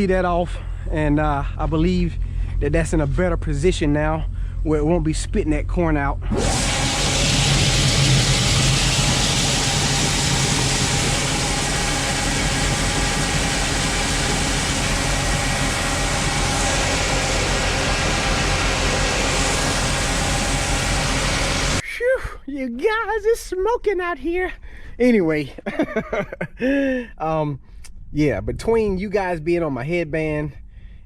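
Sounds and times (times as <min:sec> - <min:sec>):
truck engine running: 0:06.2 - 0:21.8
corn pouring into pit: 0:06.3 - 0:21.8
loud rushing of grain unloading: 0:06.3 - 0:21.8.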